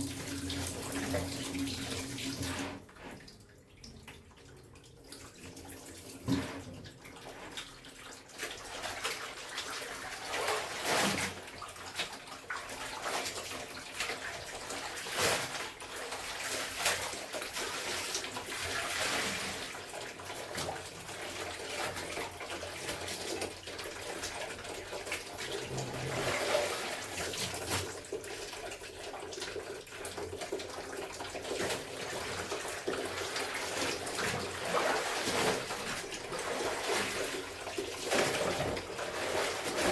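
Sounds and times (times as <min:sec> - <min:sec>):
water sloshing from hand washing: 0:00.0 - 0:39.9
water splashes: 0:23.9 - 0:29.2.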